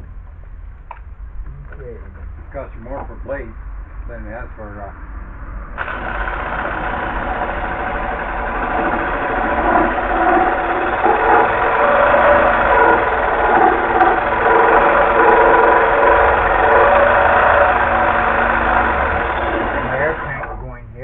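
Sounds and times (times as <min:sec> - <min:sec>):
air compressor running: 0:05.8 - 0:20.6.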